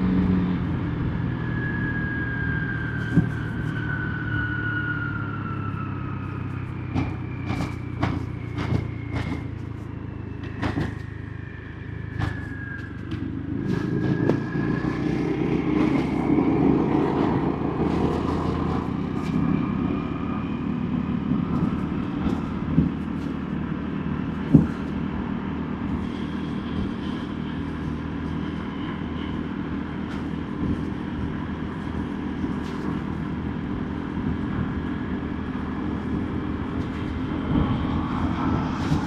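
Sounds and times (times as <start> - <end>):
traffic noise: 0.0 - 39.0
sharp knocks: 6.9 - 9.8, 10.4 - 11.1, 12.2 - 14.4.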